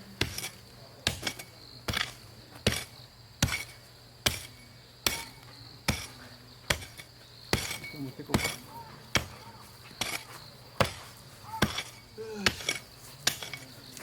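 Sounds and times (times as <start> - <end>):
insect chirring: 1.4 - 14.0.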